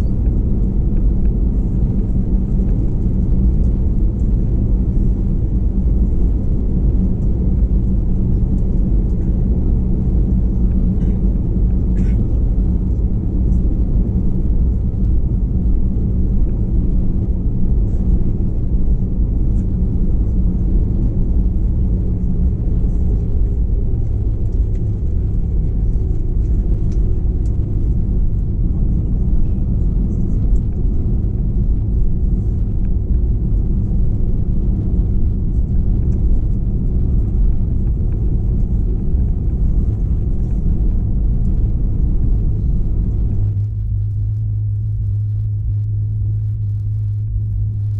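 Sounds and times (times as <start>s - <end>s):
airplane cabin engine rumble: 0.0s - 47.9s.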